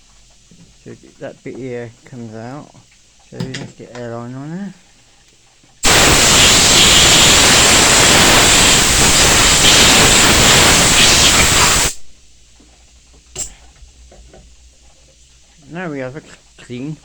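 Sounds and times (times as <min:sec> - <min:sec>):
compressed air hissing: 0:05.8 - 0:12.2.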